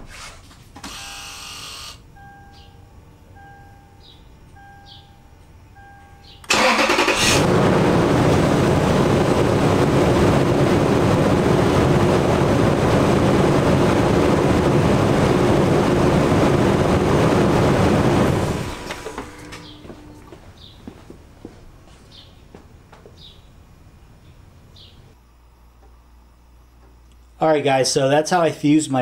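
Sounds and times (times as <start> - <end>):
car engine idling: 2.1 - 21.2
engine starter cranking: 6.4 - 7.5.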